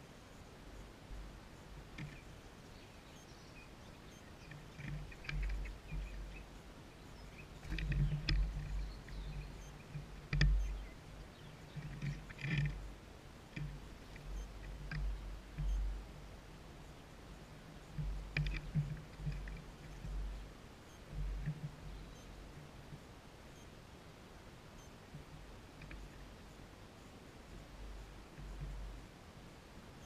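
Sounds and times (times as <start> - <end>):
small birds chirping: 0.2 - 22.7.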